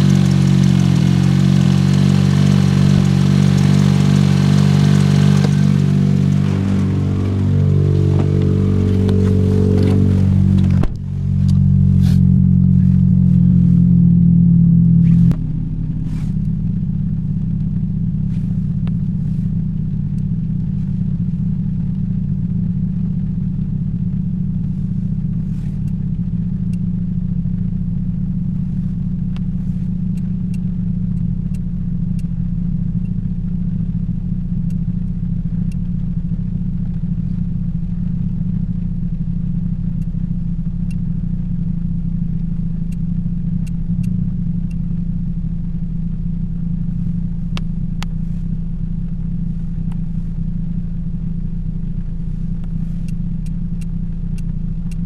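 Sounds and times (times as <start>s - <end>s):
light engine ticks: 0.0s - 10.8s, 24.5s - 55.0s
car engine idling: 0.0s - 55.0s.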